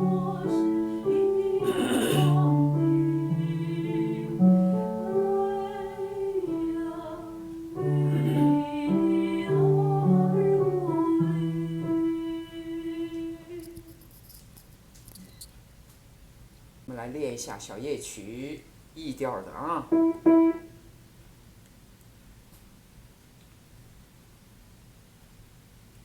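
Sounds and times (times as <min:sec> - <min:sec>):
person singing long notes: 0:00.0 - 0:13.6.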